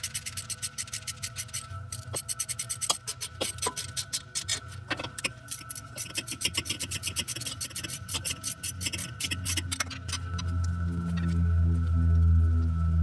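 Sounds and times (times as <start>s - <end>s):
music: 10.1s - 13.0s.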